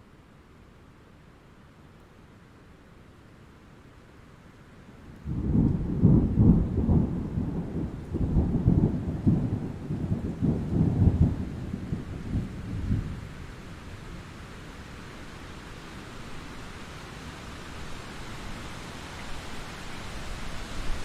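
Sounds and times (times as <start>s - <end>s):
rain hiss: 0.0s - 21.0s
rolling thunder: 5.3s - 13.4s.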